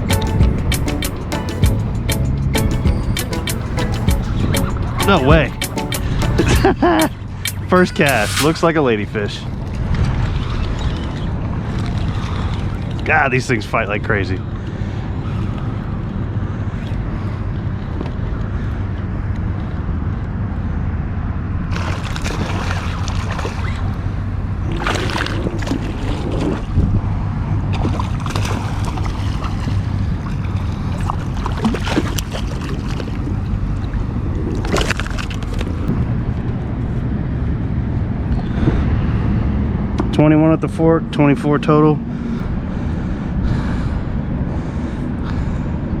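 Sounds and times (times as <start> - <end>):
water splashing and sloshing: 2.6 - 13.1, 21.7 - 36.0.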